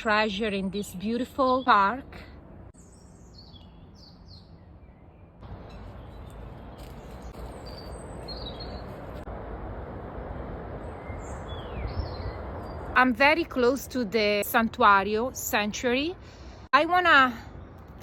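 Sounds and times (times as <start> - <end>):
birds chirping: 0.0 - 9.3, 10.8 - 13.2.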